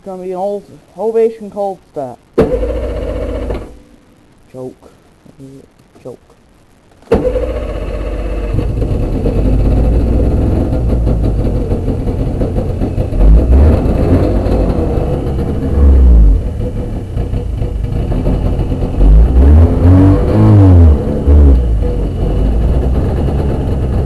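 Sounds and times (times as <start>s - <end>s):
snowmobile engine idling: 7.3s - 24.0s.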